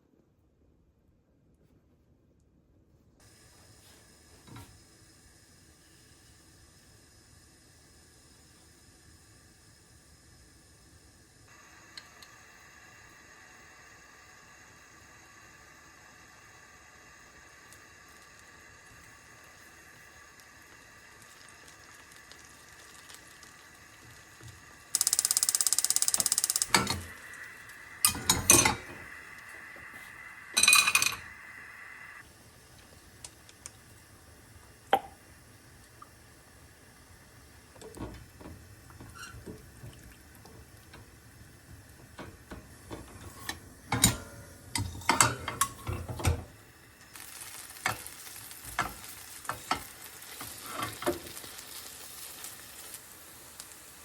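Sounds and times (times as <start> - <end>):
loud hiss: 3.2 - 33.5
frying sizzle: 3.2 - 54.0
utensils and dishes clinking: 26.1 - 27.2, 28.1 - 29.0, 30.6 - 31.3, 42.9 - 46.4.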